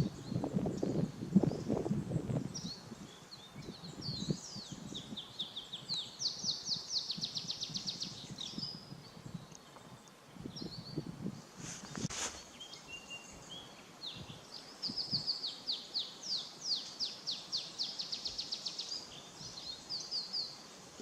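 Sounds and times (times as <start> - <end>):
wild birds singing: 0.0 - 21.0
low irregular rustle: 11.1 - 14.4.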